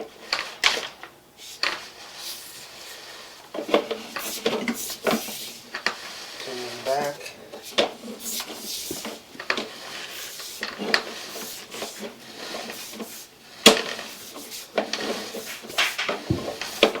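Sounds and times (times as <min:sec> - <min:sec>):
cable knocking and clattering: 0:07.8 - 0:09.8, 0:14.8 - 0:17.0
cable rubbing: 0:08.0 - 0:17.0.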